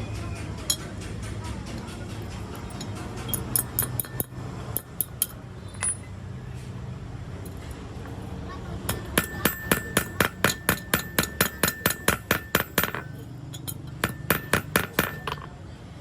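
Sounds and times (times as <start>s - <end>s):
hammer striking metal: 2.7s - 6.1s, 8.9s - 15.5s.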